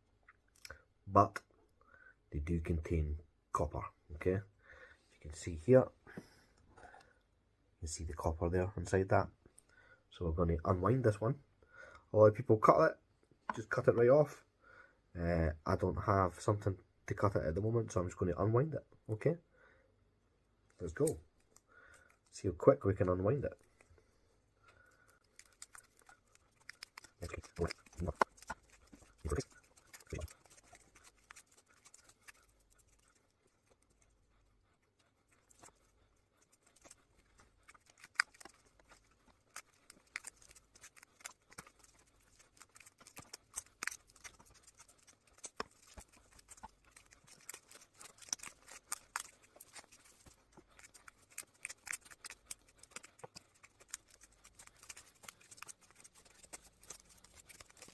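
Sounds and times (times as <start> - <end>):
tape being peeled crackling: 25.1 - 34.1, 35.2 - 57.9.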